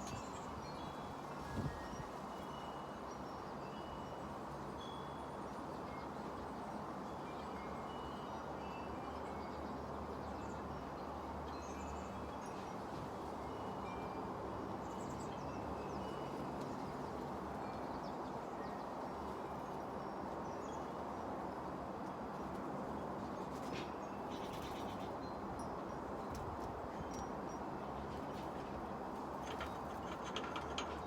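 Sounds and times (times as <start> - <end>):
wind on microphone: 1.4 - 2.1.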